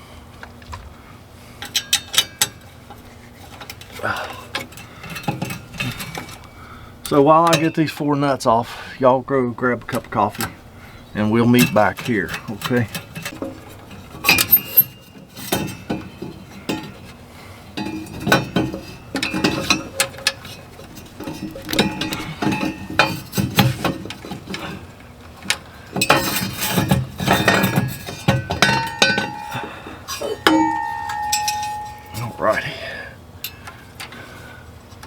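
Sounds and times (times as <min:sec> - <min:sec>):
metallic clinks of wrench and nuts: 0:26.0 - 0:32.7.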